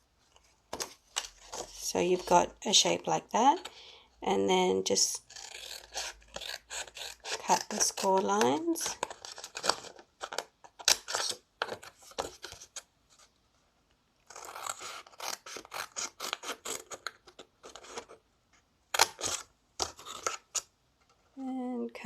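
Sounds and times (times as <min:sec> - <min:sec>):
scissors snipping cardstock: 0:05.6 - 0:09.7.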